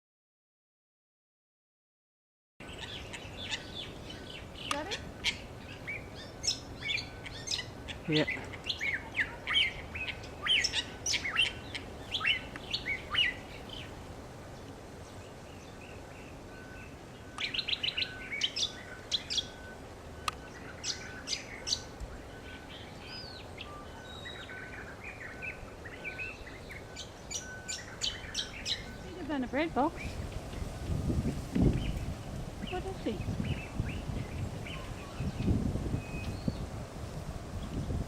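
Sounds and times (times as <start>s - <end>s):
songbirds chirping: 2.6s - 38.0s.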